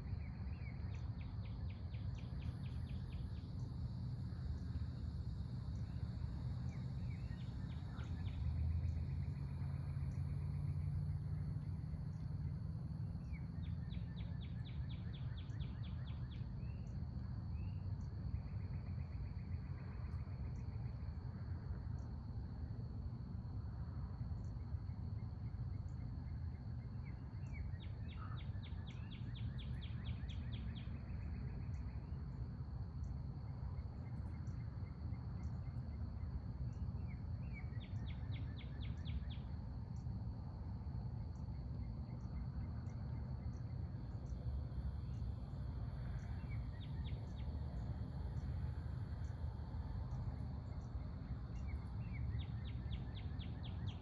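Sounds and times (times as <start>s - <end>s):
insect drone: 0.0s - 54.0s
steady low rumble: 25.2s - 53.9s.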